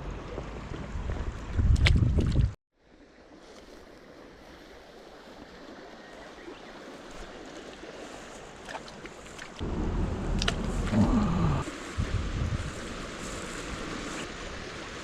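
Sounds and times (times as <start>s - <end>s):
wind rumble on microphone: 0.0s - 2.6s, 9.6s - 15.0s
stream flowing: 2.8s - 15.0s.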